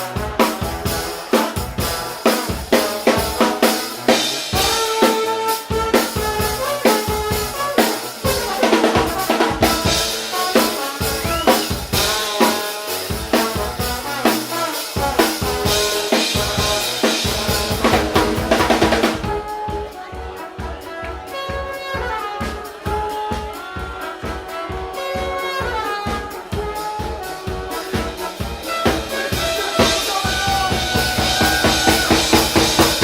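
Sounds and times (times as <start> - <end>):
brass band playing rock: 0.0 - 33.0
drum kit rock beat: 0.0 - 33.0.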